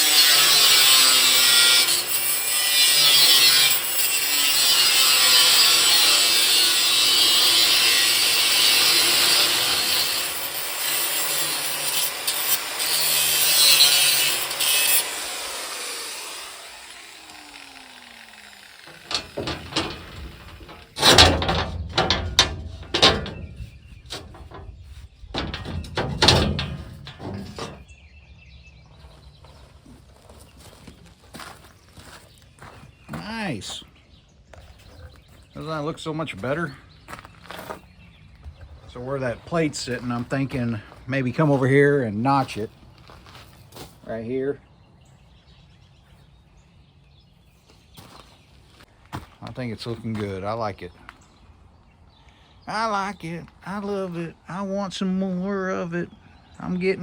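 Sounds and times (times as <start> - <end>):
angle grinder grinding steel: 0.0 - 27.9
metal clanks and knocks: 18.8 - 27.9.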